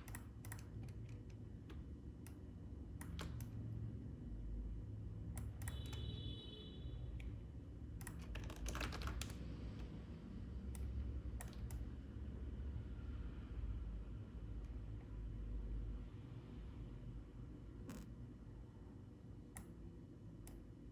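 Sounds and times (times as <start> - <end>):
mouse clicks: 0.0 - 2.4, 5.4 - 6.0
computer keyboard clicks: 0.0 - 3.6, 5.4 - 6.0, 8.0 - 9.9, 10.7 - 11.8.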